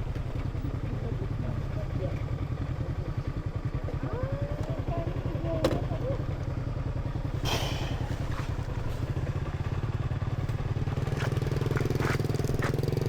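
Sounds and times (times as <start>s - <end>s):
small motorcycle engine running: 0.0s - 13.0s
short hiss: 7.4s - 8.6s.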